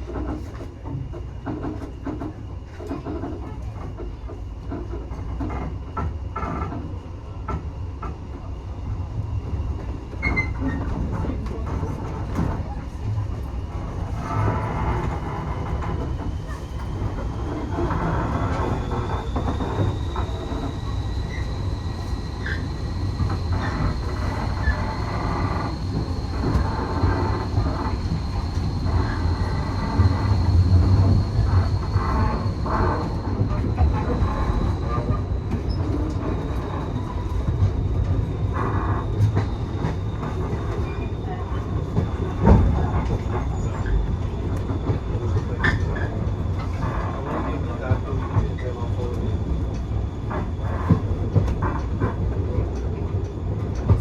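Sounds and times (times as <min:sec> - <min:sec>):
train rumbling along track: 0:00.0 - 0:54.0
high wheel squeal: 0:16.4 - 0:37.4.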